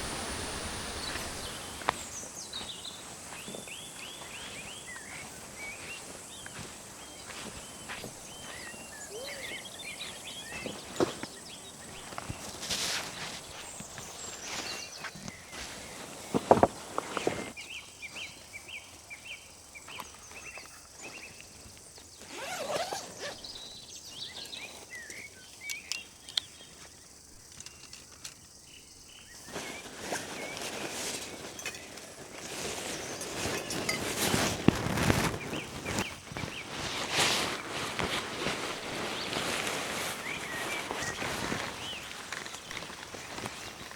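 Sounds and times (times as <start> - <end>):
rustling scuffing movement: 0.0 - 18.4, 29.3 - 43.9
small bird chirping: 0.8 - 15.6.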